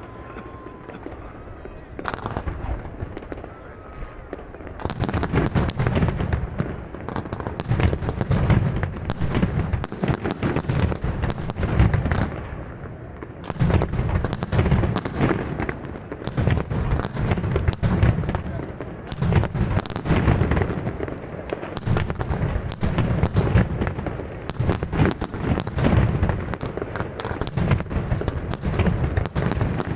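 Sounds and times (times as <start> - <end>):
fireworks bursting and crackling: 0.0 - 29.9.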